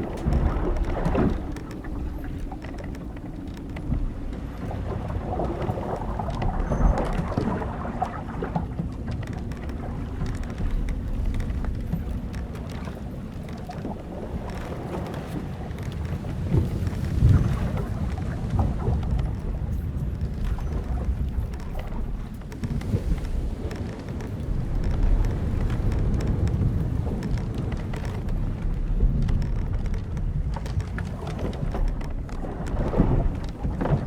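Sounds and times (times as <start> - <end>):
wind and waves rumble: 0.0 - 34.0
wooden hull creaking and knocking: 0.0 - 34.0.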